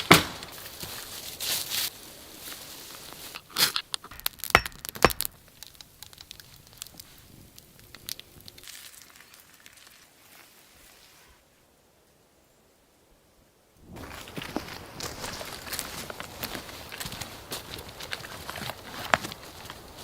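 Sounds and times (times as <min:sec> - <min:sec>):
sharp cracks: 0:03.6 - 0:07.0
rustling and crackling: 0:13.9 - 0:20.0.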